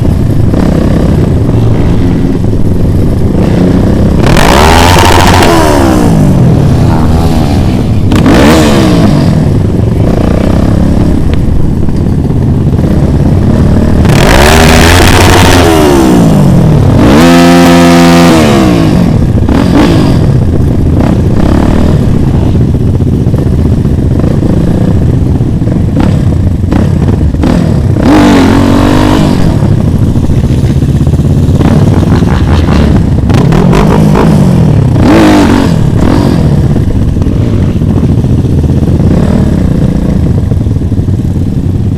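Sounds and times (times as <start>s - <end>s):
constant rushing noise: 0.0s - 41.9s
motorcycle engine revving: 0.0s - 41.9s.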